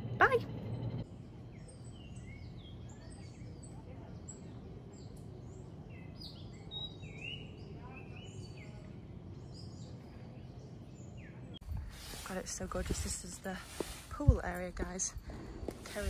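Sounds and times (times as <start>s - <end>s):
low steady background rush: 0.0s - 16.0s.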